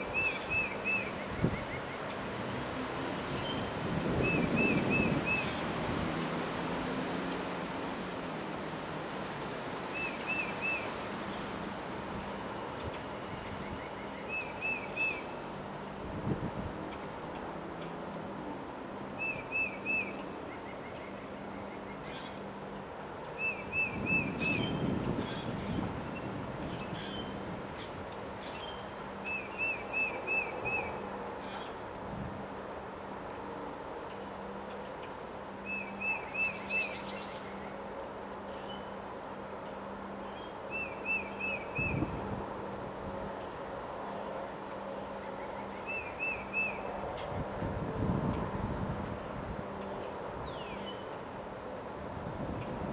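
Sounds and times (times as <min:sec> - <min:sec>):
wind: 0:00.0 - 0:52.9
wind noise: 0:01.2 - 0:08.0, 0:16.0 - 0:16.8, 0:23.9 - 0:28.1, 0:41.8 - 0:43.3, 0:47.0 - 0:50.6, 0:52.0 - 0:52.9.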